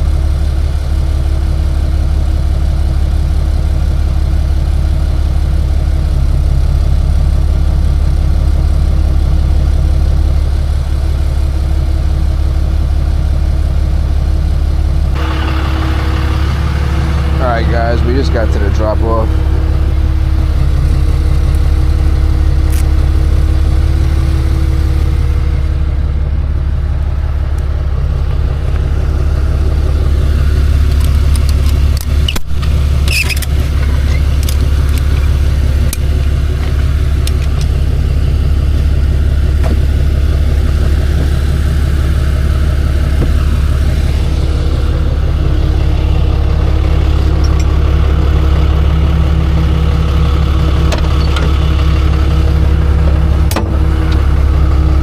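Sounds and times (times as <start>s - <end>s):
truck engine drone: 0.0s - 55.0s
clicks: 30.8s - 37.8s, 47.2s - 47.8s.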